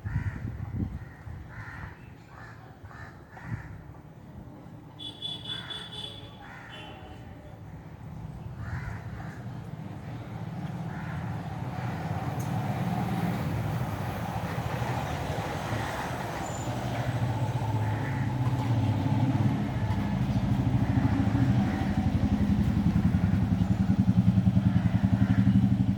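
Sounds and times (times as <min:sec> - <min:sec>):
vehicle engine pulsing: 0:17.7 - 0:25.9.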